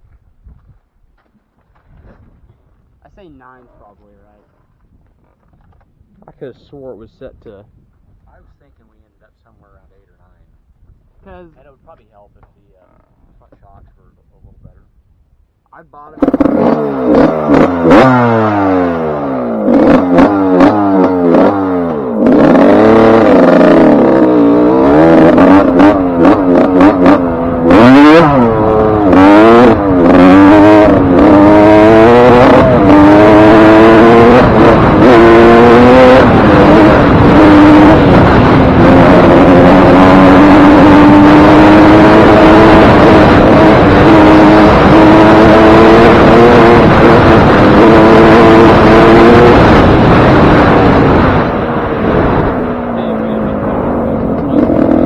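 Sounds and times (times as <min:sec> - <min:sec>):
motocross engine revving: 0:16.0 - 0:55.0.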